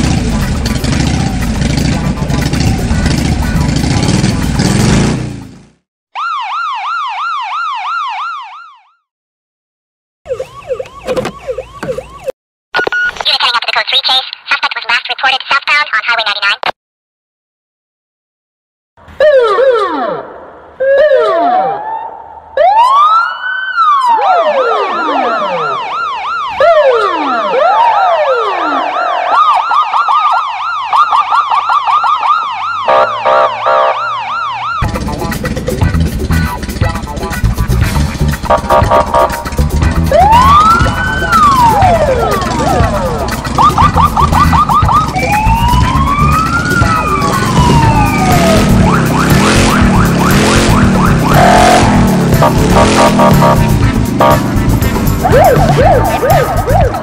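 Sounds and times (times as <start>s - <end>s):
electronic police siren: 0.9s - 3.9s, 6.1s - 9.1s, 10.3s - 12.4s, 19.2s - 35.0s, 38.5s - 54.4s, 55.2s - 57.0s.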